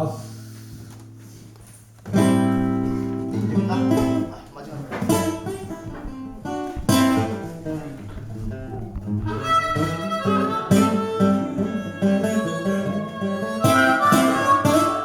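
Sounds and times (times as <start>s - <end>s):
guitar playing: 0.0s - 15.0s.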